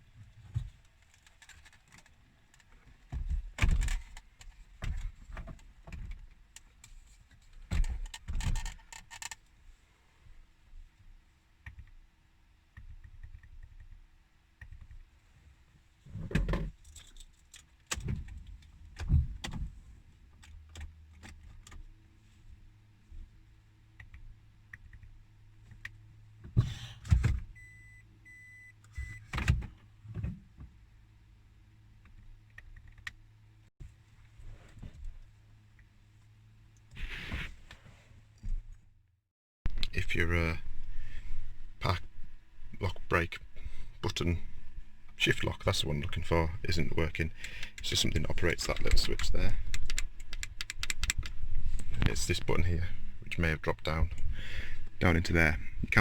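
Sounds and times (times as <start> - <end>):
plastic parts clicking and rattling: 0.6 - 6.8, 7.4 - 9.5, 47.4 - 52.2.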